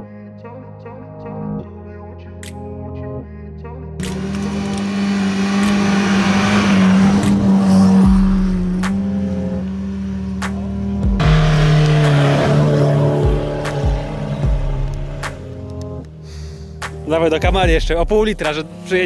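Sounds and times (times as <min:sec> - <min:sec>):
car engines revving: 0:04.0 - 0:16.2.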